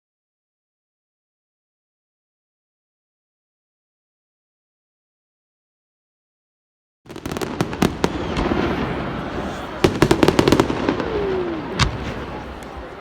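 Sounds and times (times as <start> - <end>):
fireworks crackling bangs: 7.1 - 13.0
fireworks rumble: 7.1 - 13.0.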